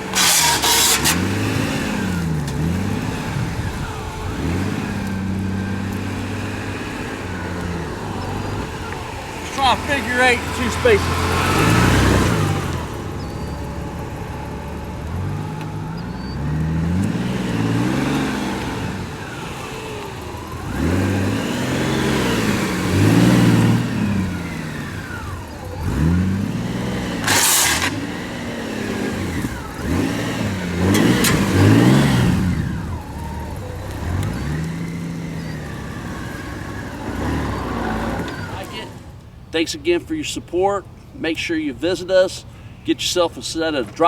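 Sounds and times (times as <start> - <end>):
motorcycle engine revving: 0.0 - 39.4.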